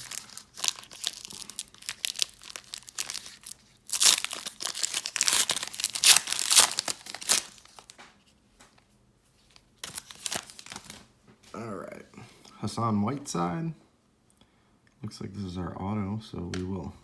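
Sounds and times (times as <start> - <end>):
plastic wrapper tearing and crinkling: 0.0 - 8.0, 9.8 - 11.1.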